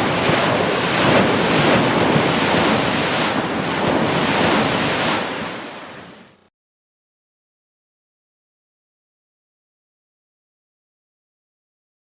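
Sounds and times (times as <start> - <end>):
ocean waves breaking: 0.0 - 6.5.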